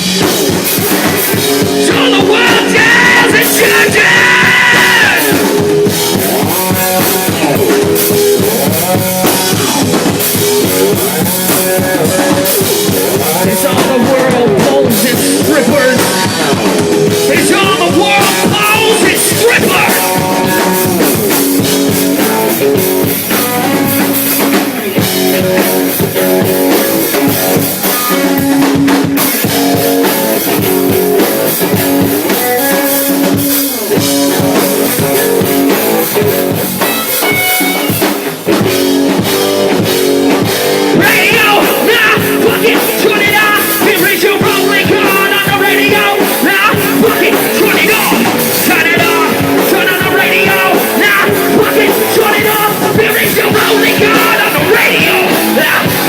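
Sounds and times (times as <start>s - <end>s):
high wavering guitar line: 0.0s - 56.0s
rock band playing: 0.0s - 56.0s.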